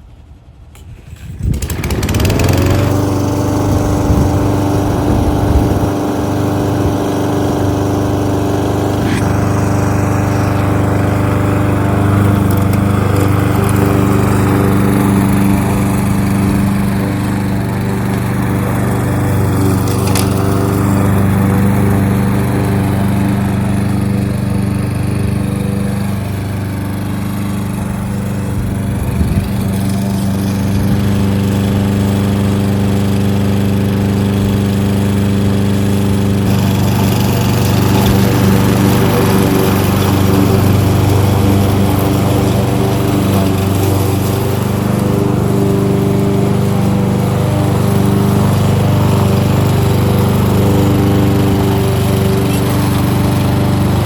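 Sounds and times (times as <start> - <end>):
lawnmower engine starting and running: 0.0 - 54.0.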